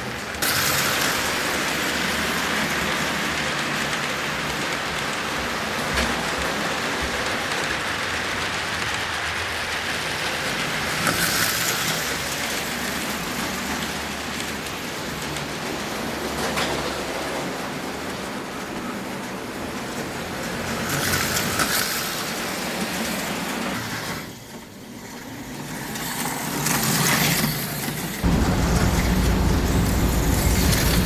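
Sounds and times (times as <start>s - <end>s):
slot car motors whirring: 28.2s - 31.0s.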